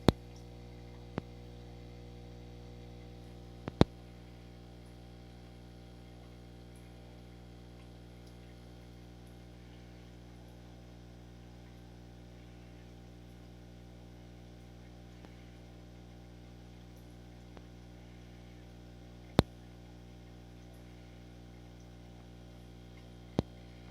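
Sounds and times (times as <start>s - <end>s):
electrical hum: 0.0s - 23.9s
faint ticks: 2.9s - 10.7s.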